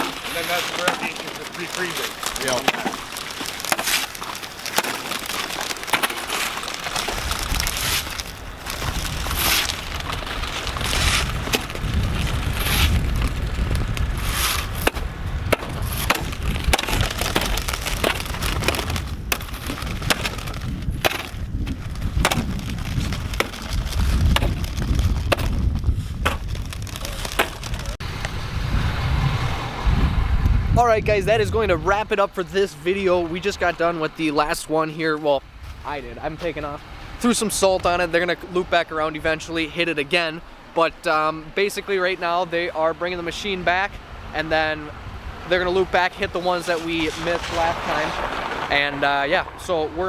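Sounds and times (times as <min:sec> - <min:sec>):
ice crunching and cracking: 0:00.0 - 0:28.0, 0:46.2 - 0:50.0
low rumble: 0:07.2 - 0:32.1.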